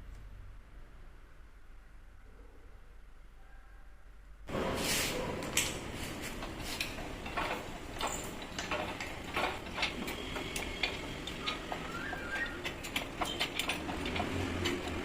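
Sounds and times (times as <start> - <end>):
tool parts clicking and clinking: 5.4 - 15.0.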